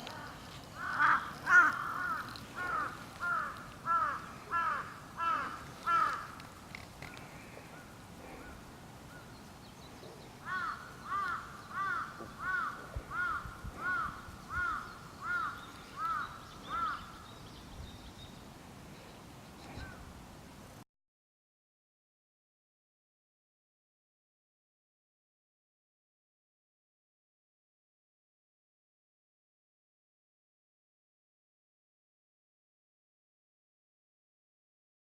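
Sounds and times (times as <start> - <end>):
crow cawing: 0.0 - 6.4, 10.4 - 17.3.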